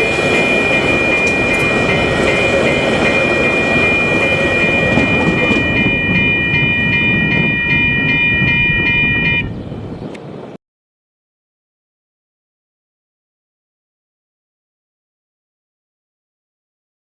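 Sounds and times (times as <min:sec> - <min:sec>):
electronic crossing bells ringing: 0:00.0 - 0:09.6
train rumbling past: 0:00.0 - 0:10.5.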